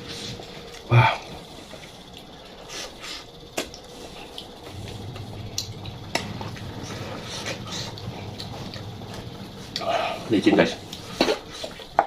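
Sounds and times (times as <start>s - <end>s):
mouth and food eating sounds: 0.0s - 12.0s
low hum: 3.4s - 12.0s.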